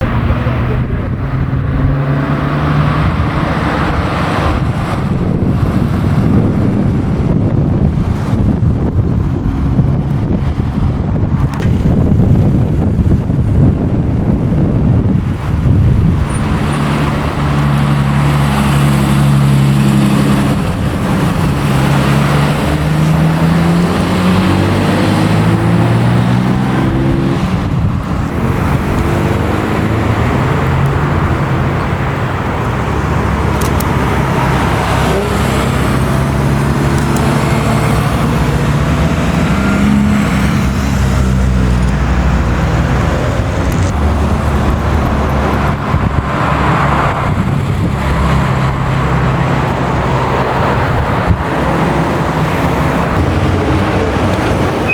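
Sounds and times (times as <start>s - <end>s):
car engines revving: 0.0s - 54.9s.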